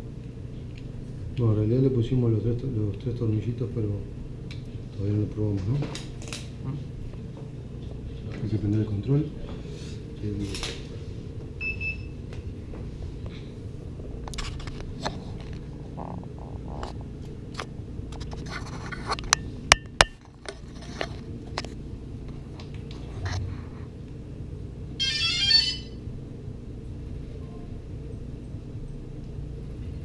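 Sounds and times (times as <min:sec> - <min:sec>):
handling clicks knocks and scrapes: 0:17.6 - 0:19.4, 0:20.0 - 0:23.5
electronic startup tones: 0:25.0 - 0:26.0.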